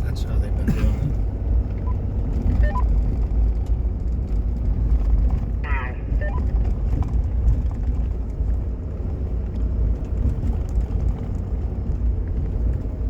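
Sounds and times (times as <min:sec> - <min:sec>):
vehicle cabin road rumble: 0:00.0 - 0:13.0
light ticks and rattles: 0:00.8 - 0:05.6, 0:06.4 - 0:13.0.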